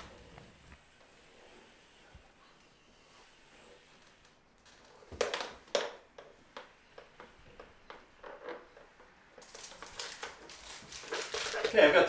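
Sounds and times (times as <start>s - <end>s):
plastic strip rustling: 9.4s - 12.0s.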